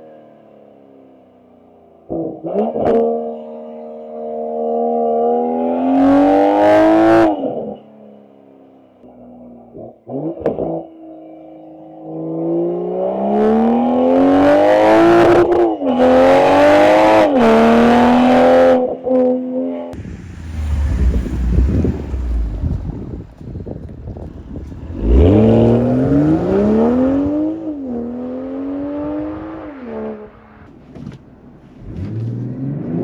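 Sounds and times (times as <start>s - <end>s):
low rumble: 20.0s - 27.6s
wind noise: 20.0s - 27.7s
car engine accelerating hard: 20.0s - 33.0s.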